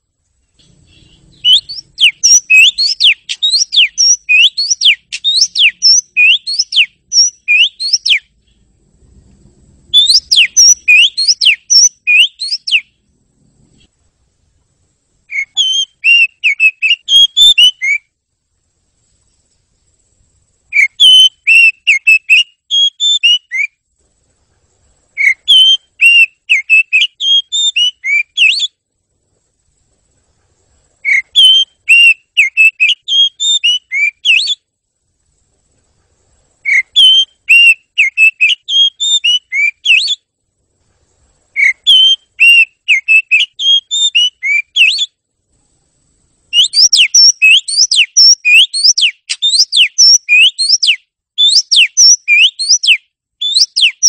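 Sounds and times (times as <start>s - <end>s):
bird singing whistled notes: 0.4s - 8.7s, 9.7s - 13.0s, 15.2s - 18.2s, 20.6s - 23.8s, 25.1s - 28.8s, 31.0s - 34.7s, 36.6s - 40.3s, 41.5s - 45.2s, 46.5s - 54.0s.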